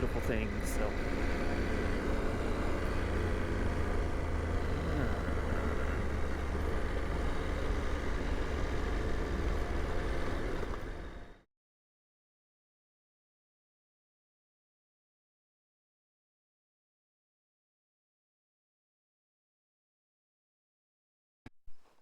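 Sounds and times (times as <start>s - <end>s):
motorcycle engine rumbling: 0.0s - 11.2s
road and wind noise: 0.0s - 11.4s.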